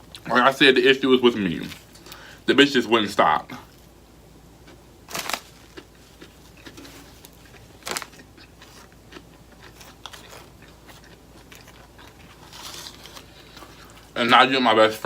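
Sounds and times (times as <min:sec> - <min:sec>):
biting food: 0:04.6 - 0:14.2
chewing with mouth clicks: 0:05.6 - 0:14.2.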